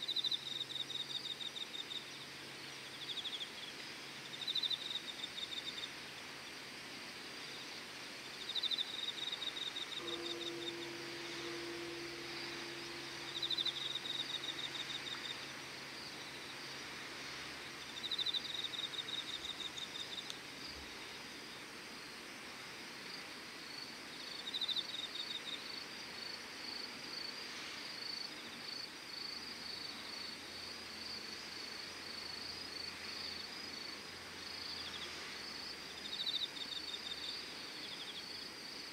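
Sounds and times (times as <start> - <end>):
insect pulsing chirp: 8.4 - 20.3
insect pulsed trills: 8.4 - 20.8
faint steady low tone: 9.8 - 21.0.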